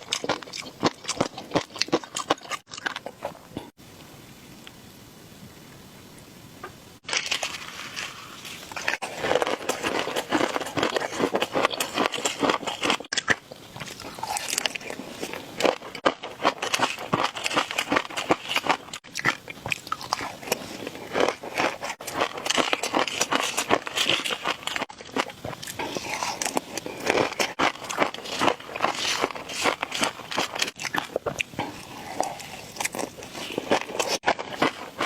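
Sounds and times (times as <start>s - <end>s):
crunchy chewing: 0.0s - 3.8s, 7.0s - 35.0s
faint hiss: 3.8s - 8.8s.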